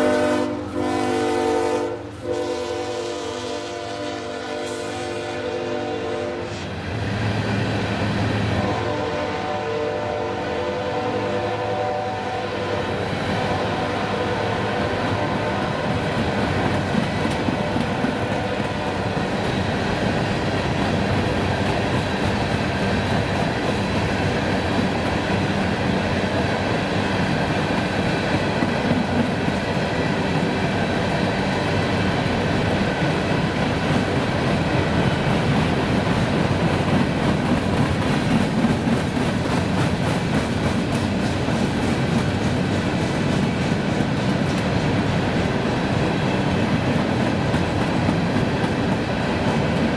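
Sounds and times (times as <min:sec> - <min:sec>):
train cars clattering over rails: 0:14.5 - 0:49.9.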